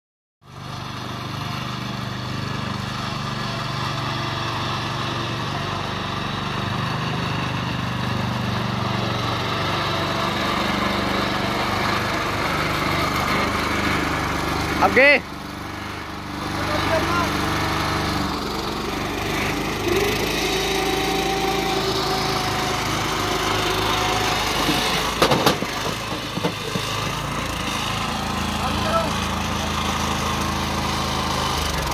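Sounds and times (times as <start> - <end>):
power tiller engine running: 0.5 - 31.9
sharp knocks and rattles: 24.4 - 27.8.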